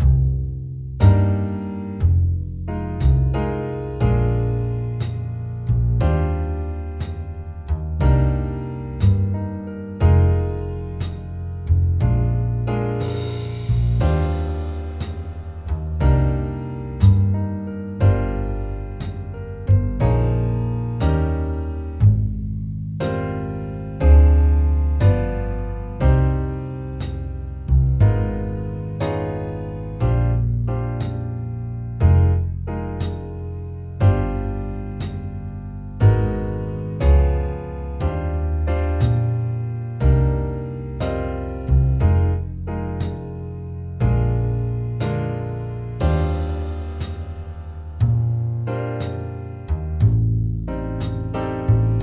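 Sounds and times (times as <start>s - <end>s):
low bass line: 0.0s - 52.0s
piano chords: 0.0s - 52.0s.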